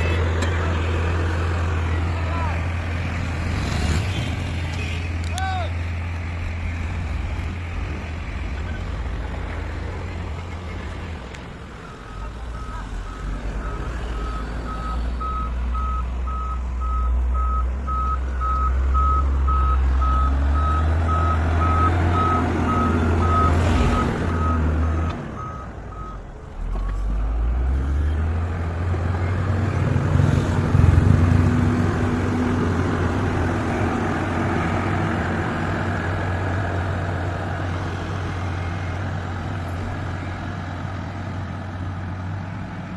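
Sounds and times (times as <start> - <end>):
diesel truck engine running: 0.0 - 42.9
reversing alarm beeping: 12.0 - 26.2.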